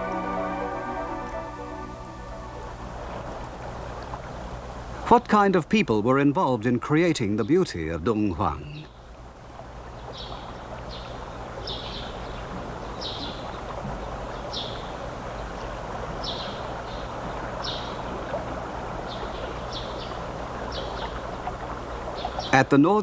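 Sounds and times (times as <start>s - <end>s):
low hum: 0.0s - 5.0s
background hiss: 0.0s - 23.0s.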